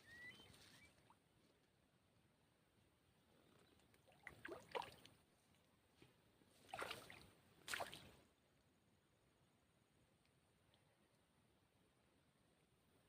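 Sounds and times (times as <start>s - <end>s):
water splashing: 4.2s - 5.1s, 6.7s - 8.1s.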